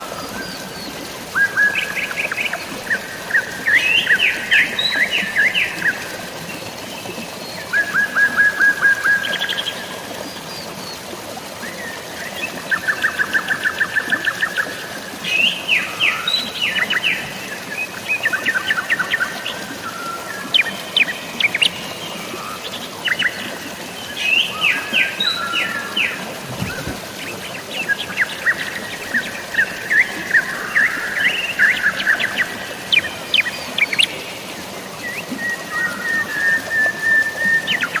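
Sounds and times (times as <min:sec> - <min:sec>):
drizzling rain: 0:00.0 - 0:38.0
flowing water: 0:00.0 - 0:38.0
birds chirping: 0:22.7 - 0:30.8.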